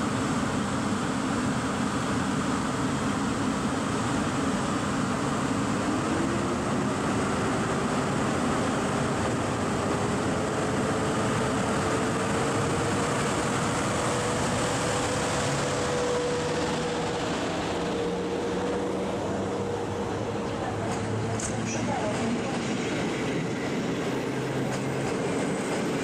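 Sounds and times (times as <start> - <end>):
train rumbling: 0.0 - 26.0
train motor whine: 8.8 - 26.0.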